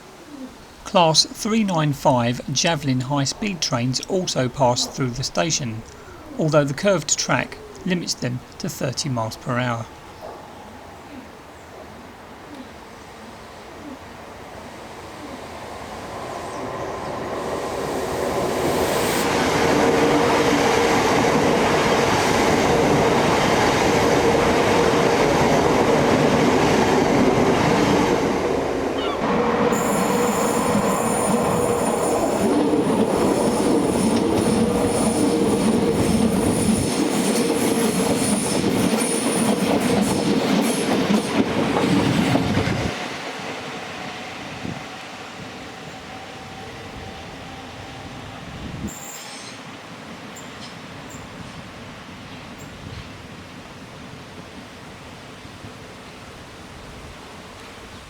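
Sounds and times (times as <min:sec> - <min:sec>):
electric train passing: 0:14.1 - 0:52.2.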